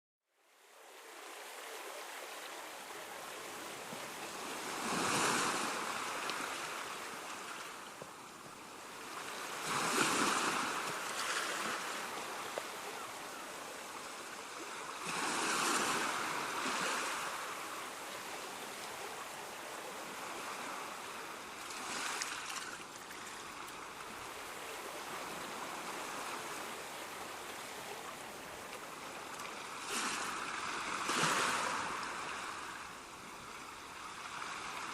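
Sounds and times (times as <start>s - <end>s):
ocean waves breaking on shore: 0.5s - 34.9s
surf hiss: 0.6s - 34.9s.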